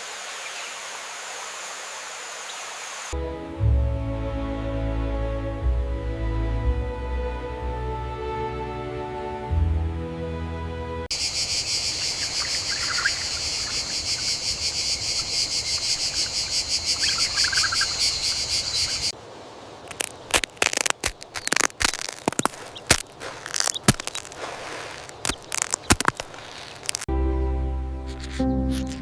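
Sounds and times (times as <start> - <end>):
insects trilling: 0.0 - 3.1, 11.1 - 19.2
bird chirps: 11.2 - 19.2, 28.0 - 29.0
sharp crackles and snaps: 19.8 - 27.1.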